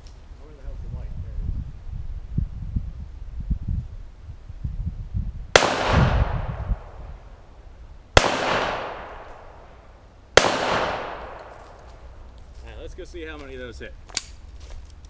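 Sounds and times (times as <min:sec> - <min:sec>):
pistol shots with echo: 0:05.6 - 0:07.1, 0:08.2 - 0:09.8, 0:10.4 - 0:11.8.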